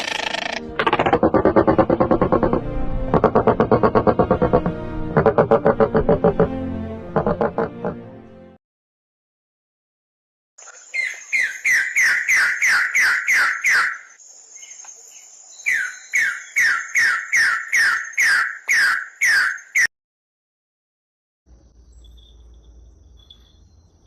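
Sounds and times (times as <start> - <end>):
bird call with downsweeping notes: 10.6 - 14.2, 15.6 - 19.9.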